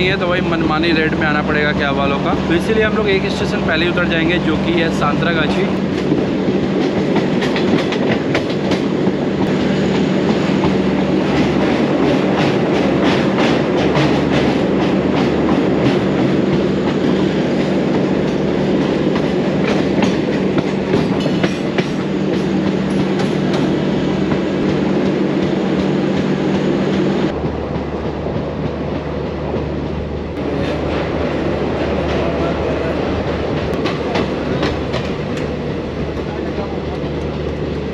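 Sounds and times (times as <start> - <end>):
train wheels clattering over joints: 5.2 - 26.3.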